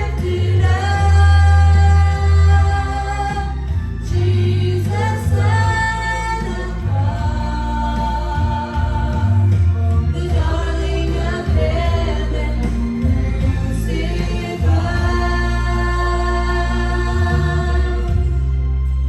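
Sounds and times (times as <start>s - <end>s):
group singing worship music: 0.0s - 19.0s.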